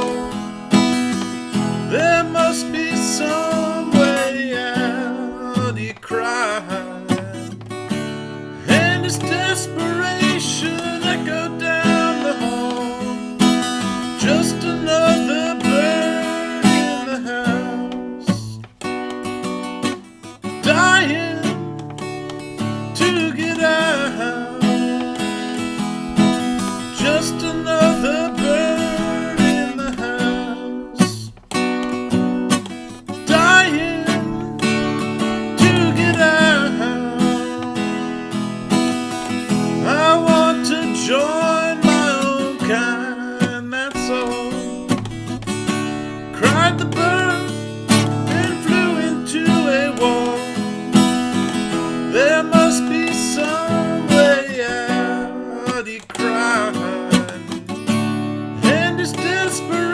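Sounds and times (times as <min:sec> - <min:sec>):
acoustic guitar strumming: 0:00.0 - 0:59.9
sliding guitar melody: 0:00.0 - 0:59.9.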